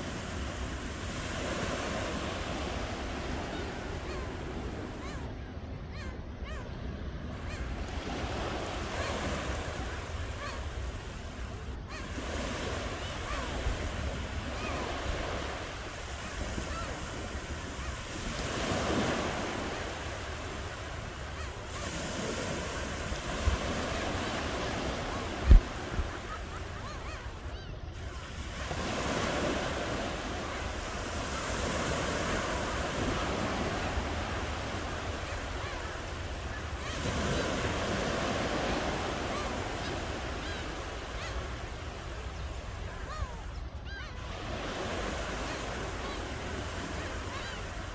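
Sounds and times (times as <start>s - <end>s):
ocean waves on a shore: 0.0s - 47.9s
wind rumble on microphone: 22.8s - 26.3s.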